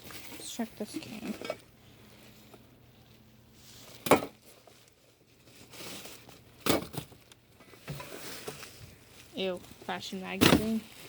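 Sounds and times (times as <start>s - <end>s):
plastic bag and papers crinkling: 0.0s - 11.0s.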